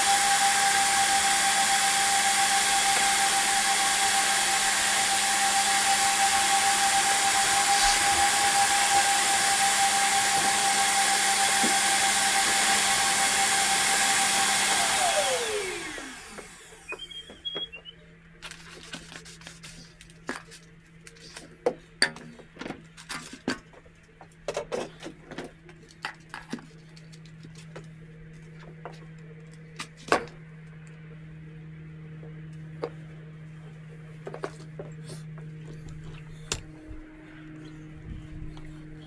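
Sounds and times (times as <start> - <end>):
debris and tools clicking and scraping: 18.4 - 30.8
low hum: 30.4 - 39.0.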